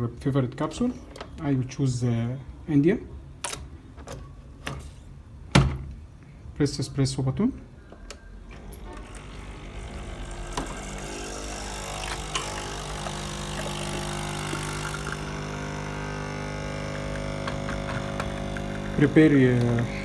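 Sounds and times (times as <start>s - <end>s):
coffee machine pump humming: 8.6s - 20.0s.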